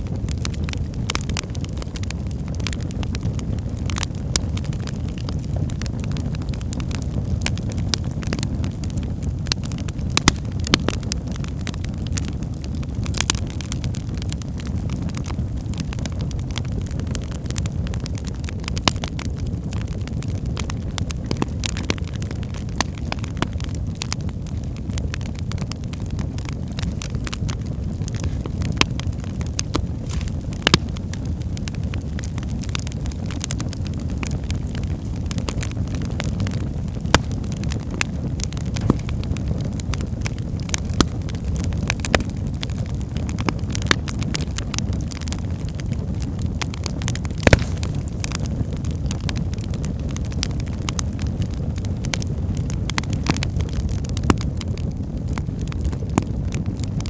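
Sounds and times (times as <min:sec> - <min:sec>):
loud fire pops: 0:00.0 - 0:57.0
wood logs burning: 0:00.0 - 0:57.0.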